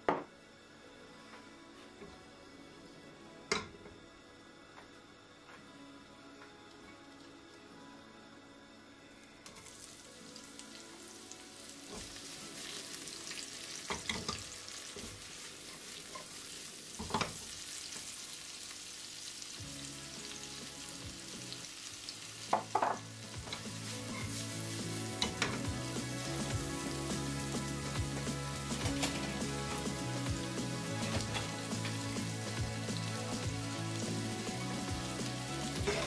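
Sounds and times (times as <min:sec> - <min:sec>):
onion and garlic sizzling in oil: 0:09.5 - 0:36.0.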